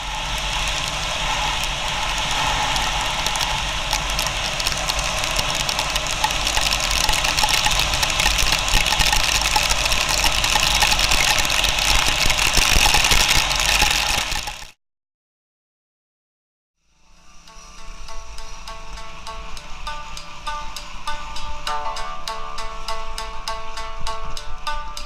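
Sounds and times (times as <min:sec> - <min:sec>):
wind rush on microphone: 0:00.0 - 0:14.7
motorcycle engine running: 0:00.0 - 0:14.8
small knocks and rattles: 0:01.7 - 0:14.7.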